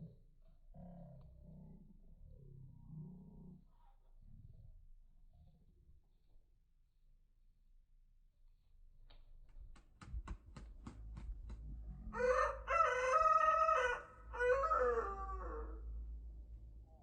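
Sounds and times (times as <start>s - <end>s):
sharp taps: 9.7s - 11.7s
rooster crowing: 12.0s - 16.0s.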